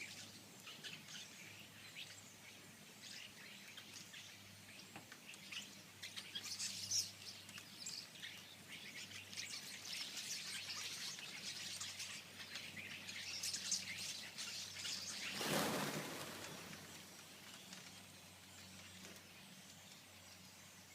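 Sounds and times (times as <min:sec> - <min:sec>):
chorus of birds chirping: 0:00.0 - 0:20.9
brief rush of noise: 0:15.3 - 0:17.0.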